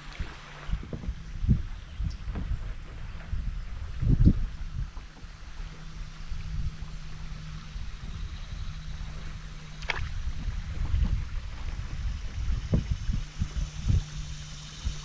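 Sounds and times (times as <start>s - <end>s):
low rumble: 0.0s - 15.0s
water lapping and gurgling: 0.0s - 15.0s.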